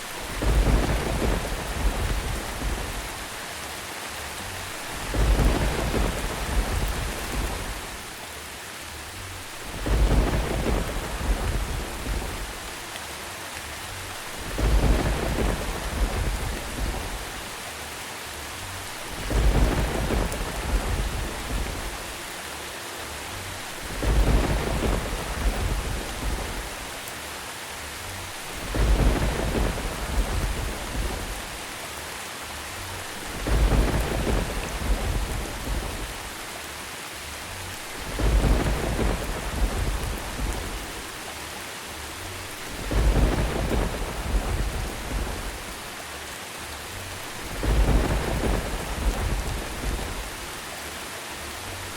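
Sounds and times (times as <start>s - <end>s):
thunder rumbling: 0.0s - 3.4s, 4.5s - 8.0s, 9.4s - 12.8s, 14.0s - 17.6s, 18.8s - 22.3s, 23.5s - 27.0s, 28.2s - 31.7s, 33.0s - 36.5s, 37.7s - 41.3s, 42.5s - 46.0s, 47.1s - 50.6s
steady rain: 0.0s - 51.9s.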